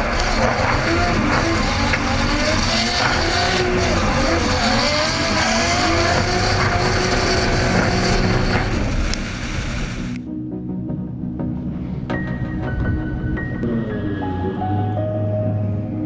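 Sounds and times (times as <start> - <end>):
car engine at high revs: 0.0 - 10.2.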